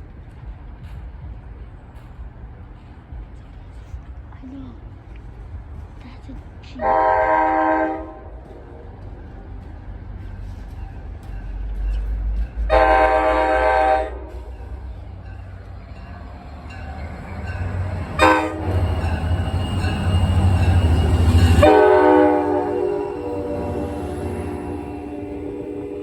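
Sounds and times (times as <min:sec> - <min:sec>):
train passing rumble: 0:00.0 - 0:26.0
train horn blasts: 0:06.8 - 0:09.0, 0:12.6 - 0:14.8, 0:18.0 - 0:26.0.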